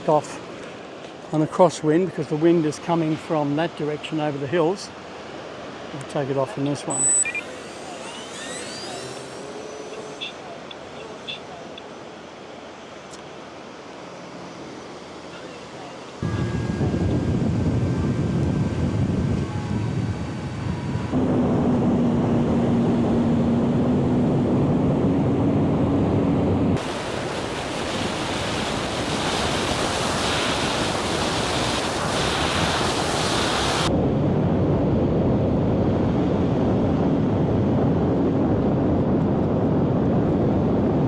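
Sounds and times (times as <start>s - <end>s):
beach surf: 0.0s - 21.3s, 25.7s - 34.0s
electric motor and propeller hum: 6.9s - 27.0s
wind buffeting microphone: 16.2s - 26.8s, 27.8s - 41.0s.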